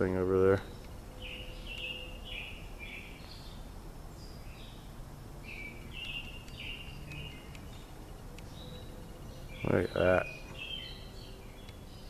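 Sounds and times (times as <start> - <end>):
songbirds chirping: 0.0 - 12.0
faint ticks: 5.9 - 9.0.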